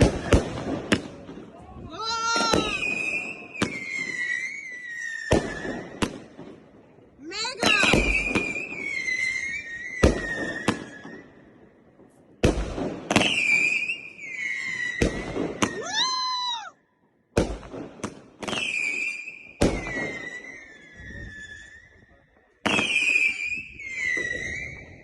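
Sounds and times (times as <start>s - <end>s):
firework bangs: 0.0s - 16.3s, 17.3s - 25.0s
firework whistling: 1.9s - 6.1s, 7.4s - 11.4s, 13.1s - 16.6s, 18.4s - 25.0s.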